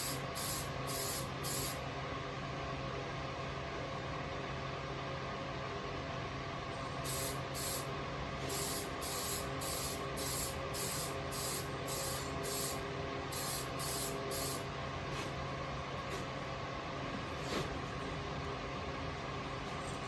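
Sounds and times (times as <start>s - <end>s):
spray paint can bursts: 0.0s - 1.8s, 8.5s - 12.8s, 13.4s - 14.6s.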